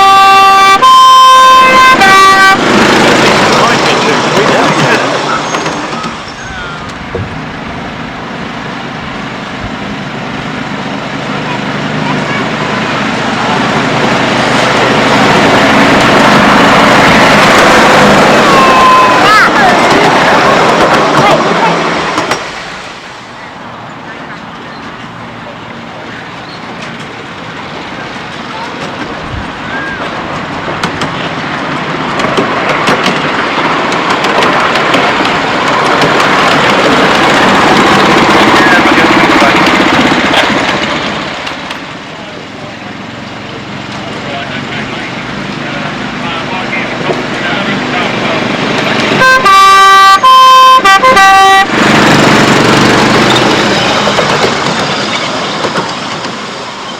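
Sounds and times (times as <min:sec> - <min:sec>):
locomotive horn blasts: 0:00.0 - 0:02.8, 0:18.4 - 0:19.3, 0:49.1 - 0:52.0
sharp clicks of train: 0:00.8 - 0:56.9
miniature train rushing hiss: 0:02.5 - 0:49.2.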